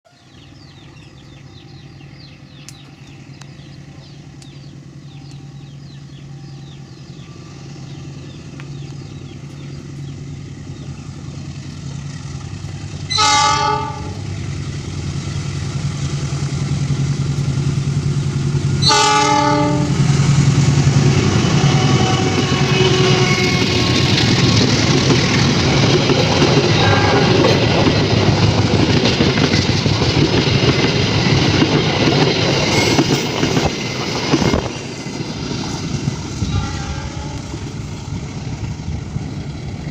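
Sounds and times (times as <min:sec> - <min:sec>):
diesel locomotive engine hum: 0:00.1 - 0:39.9
wheel and rail noise: 0:00.1 - 0:39.9
train horn blasts: 0:13.1 - 0:14.4, 0:18.8 - 0:20.1, 0:21.2 - 0:24.4, 0:26.2 - 0:27.8, 0:36.4 - 0:37.8.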